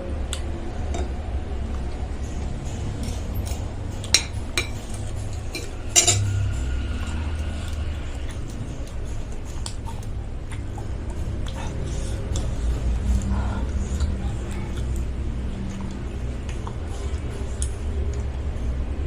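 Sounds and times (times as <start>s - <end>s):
steady low hum: 0.0s - 19.0s
cutlery clinking against bowl: 3.0s - 6.5s.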